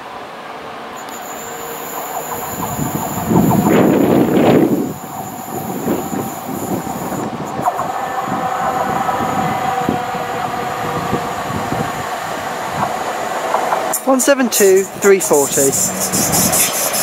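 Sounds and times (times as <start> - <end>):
diesel train running: 0.0 - 17.0
wheels squealing on curve: 1.0 - 11.8, 14.8 - 17.0.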